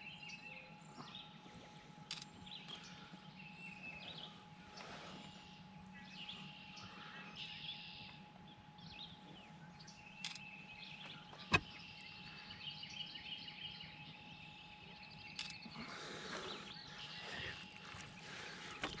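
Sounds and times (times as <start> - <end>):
songbirds chirping and singing: 0.0 - 19.0
sharp click: 15.4 - 15.6.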